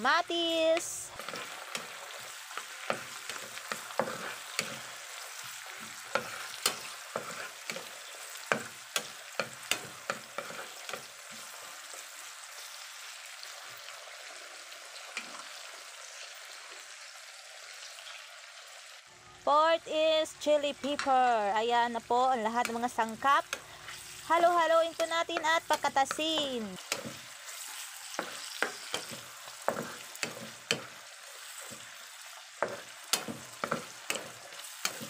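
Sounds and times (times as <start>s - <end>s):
vegetables sizzling in hot oil: 0.0s - 19.3s, 20.0s - 35.0s
wooden spatula scraping pan: 1.1s - 11.6s, 24.9s - 35.0s.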